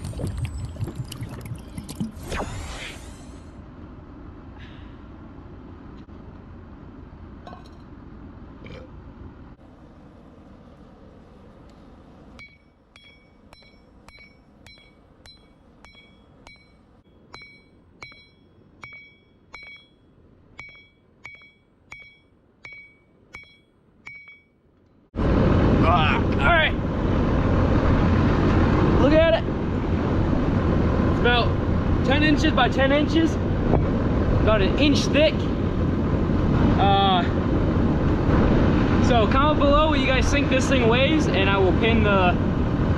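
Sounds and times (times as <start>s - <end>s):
hammer ringing on steel plate: 12.4s - 24.6s
steady rushing noise: 25.2s - 42.9s.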